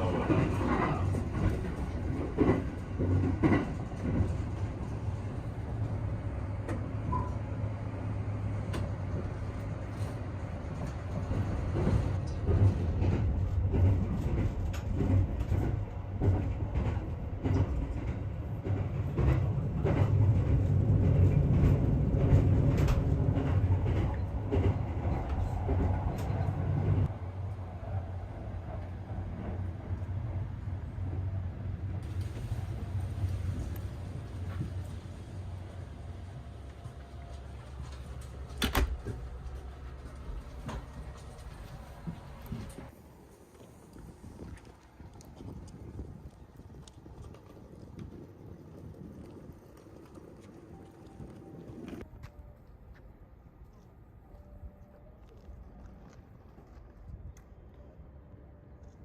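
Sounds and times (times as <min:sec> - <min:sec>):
rail clicks and knocks: 0:00.0 - 0:07.6, 0:08.5 - 0:27.1, 0:36.5 - 0:42.9
train rumbling on rails: 0:00.0 - 0:59.0.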